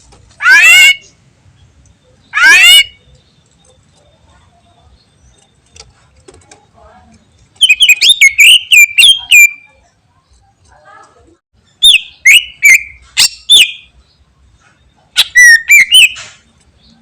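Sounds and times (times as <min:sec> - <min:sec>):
bird whistling sharp notes: 0:07.6 - 0:09.7, 0:15.2 - 0:16.4.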